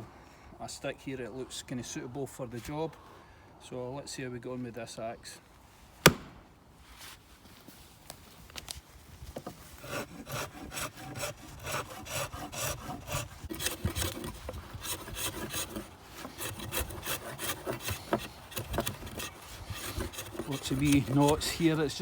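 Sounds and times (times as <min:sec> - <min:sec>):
axe scraping bark off stick: 0:06.0 - 0:06.4.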